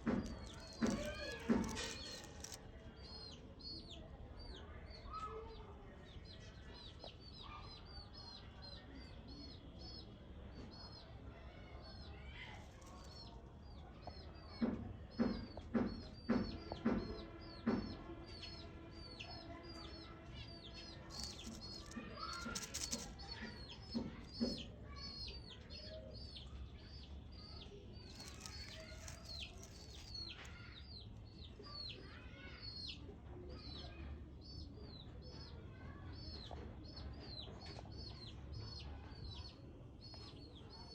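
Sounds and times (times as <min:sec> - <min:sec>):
brief rustle: 0:00.1 - 0:02.6, 0:21.0 - 0:23.4, 0:28.1 - 0:30.6.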